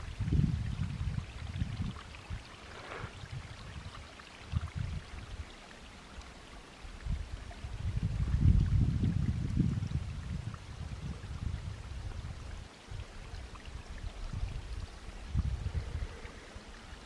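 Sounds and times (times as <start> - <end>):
wind buffeting microphone: 0.0 - 5.5, 6.9 - 17.0.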